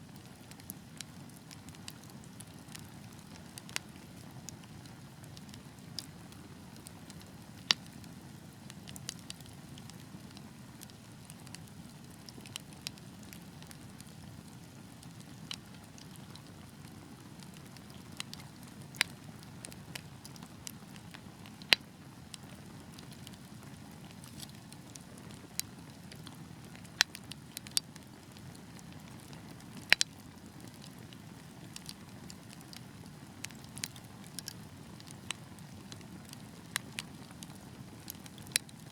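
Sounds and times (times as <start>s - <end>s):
fire crackles and pops: 0.0s - 38.9s
wood fire burning: 0.1s - 38.9s.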